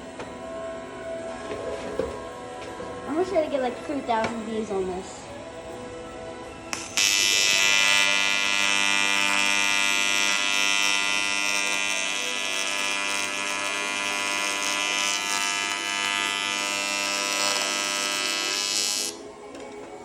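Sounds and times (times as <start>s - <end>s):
welding arc buzzing: 6.7s - 19.3s.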